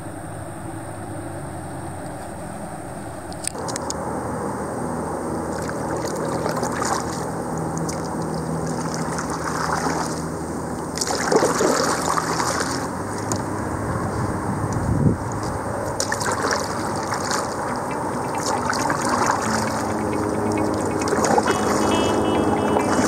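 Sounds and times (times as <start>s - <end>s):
water sloshing around a kayak: 5.4s - 23.0s
water splash: 5.5s - 10.3s, 10.9s - 13.5s, 15.3s - 23.0s.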